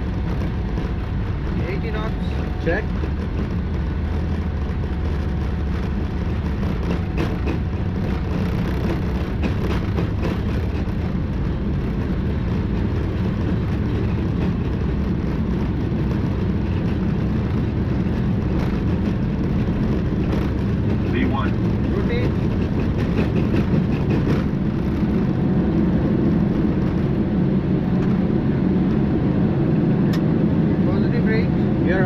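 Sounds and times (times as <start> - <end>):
jet engines at takeoff thrust: 0.0 - 32.0
wheels rumbling on runway: 0.0 - 32.0.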